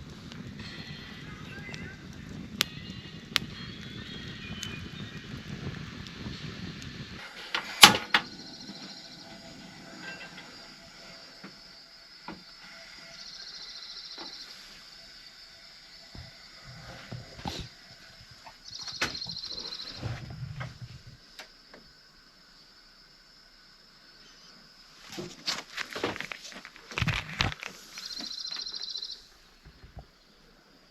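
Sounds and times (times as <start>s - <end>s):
high buzzing trills: 0.0s - 20.1s.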